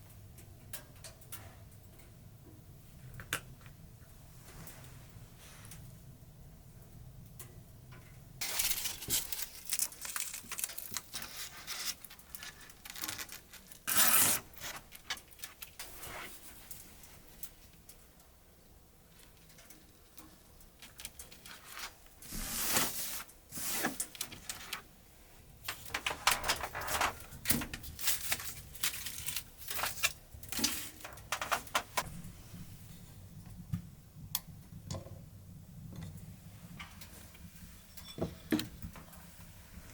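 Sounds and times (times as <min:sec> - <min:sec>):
objects handled clicking and rustling: 0:08.4 - 0:18.0, 0:25.6 - 0:32.1.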